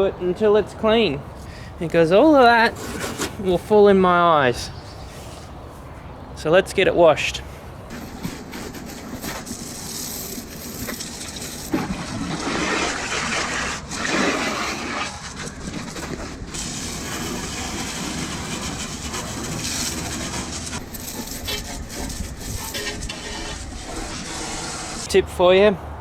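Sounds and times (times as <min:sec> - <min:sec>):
hose spraying water on truck: 0:01.8 - 0:03.7, 0:08.1 - 0:25.1.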